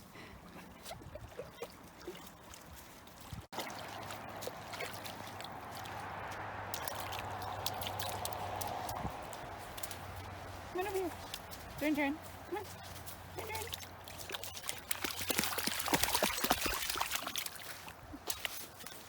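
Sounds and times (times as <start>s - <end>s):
water trickling and splashing: 0.0s - 19.0s
water rushing: 3.5s - 11.9s, 12.6s - 18.0s.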